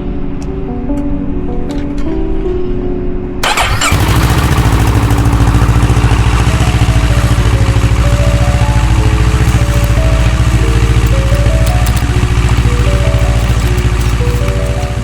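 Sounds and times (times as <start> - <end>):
faint background music: 0.0 - 5.0
motorcycle engine idling: 3.4 - 15.0
motorcycle engine starter cranking: 3.4 - 15.0.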